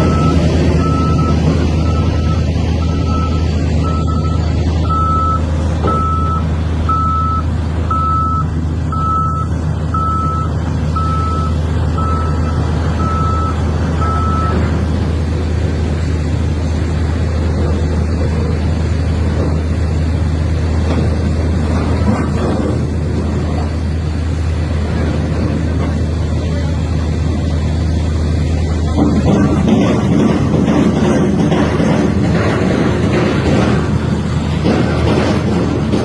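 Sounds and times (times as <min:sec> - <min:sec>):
reversing alarm beeping: 0:00.0 - 0:14.7
diesel engine drone: 0:00.0 - 0:36.0.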